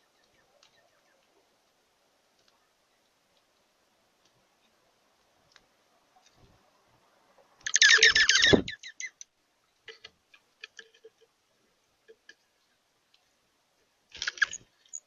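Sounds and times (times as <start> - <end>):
soft clicks and ticks: 0.2 - 1.4, 2.3 - 6.6, 12.0 - 15.0
bird chattering call: 7.7 - 9.2.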